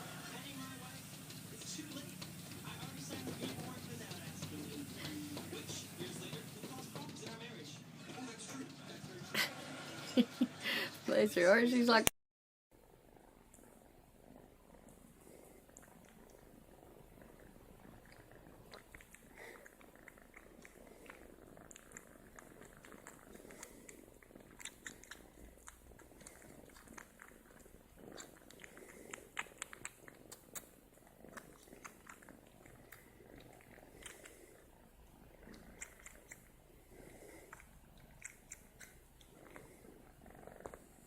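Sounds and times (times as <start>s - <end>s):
cat purring: 0.0s - 12.1s, 12.8s - 41.0s
faint clicks and crackles: 0.1s - 7.8s, 13.1s - 41.0s.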